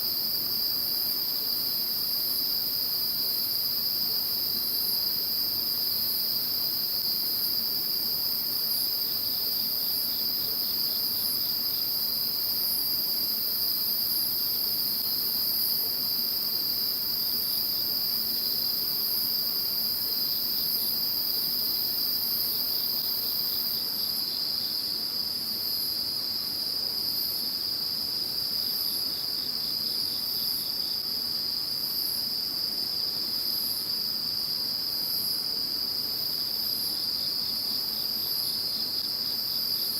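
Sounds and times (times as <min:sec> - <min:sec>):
insects high continuous trill: 0:00.0 - 0:39.9.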